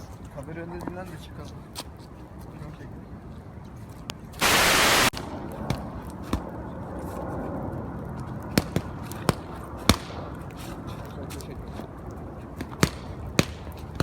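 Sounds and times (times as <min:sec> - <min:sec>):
burst of hiss: 0:04.4 - 0:05.1.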